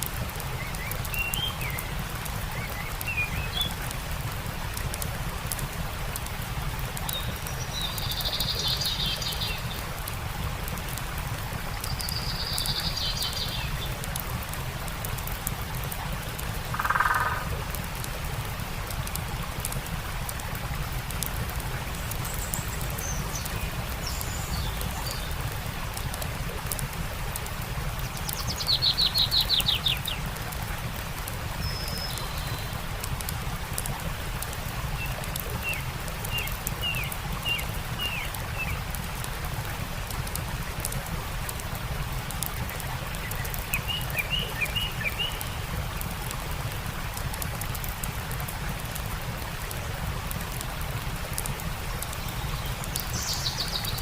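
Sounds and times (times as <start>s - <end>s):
campfire crackling: 0.0s - 54.0s
stream rushing: 0.0s - 54.0s
birds calling: 16.7s - 17.5s.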